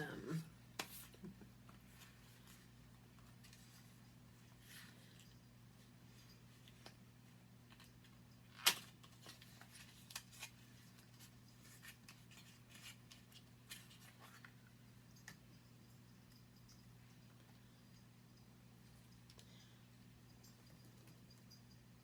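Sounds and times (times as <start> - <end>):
package handling clicks and rustles: 7.7 - 14.6.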